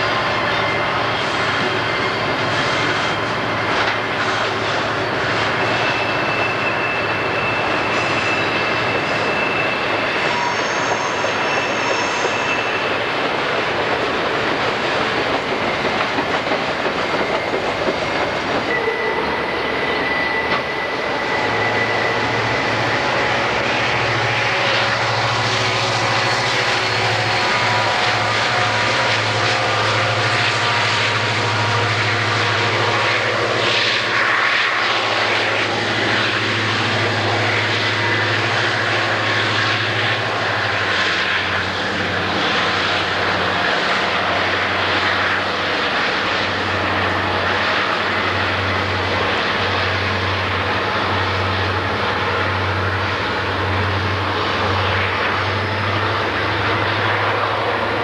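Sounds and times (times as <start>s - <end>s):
freight train rumbling past: 0.0s - 58.0s
diesel engine drone: 18.1s - 58.0s.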